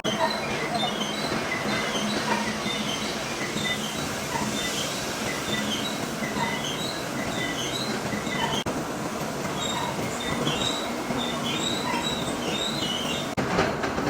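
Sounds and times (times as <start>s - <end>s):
high-pitched metallic squeals: 0.0s - 8.7s.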